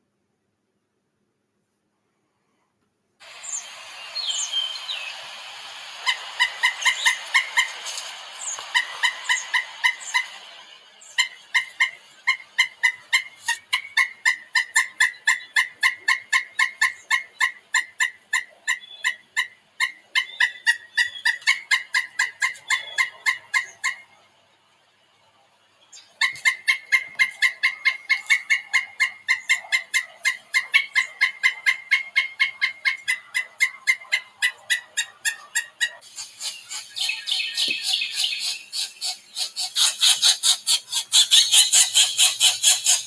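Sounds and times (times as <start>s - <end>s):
hiss: 3.2s - 12.2s, 36.0s - 43.0s
high sliding bird chirps: 3.2s - 15.7s, 35.0s - 43.0s
bird giving harsh calls: 3.2s - 24.1s, 26.2s - 43.0s.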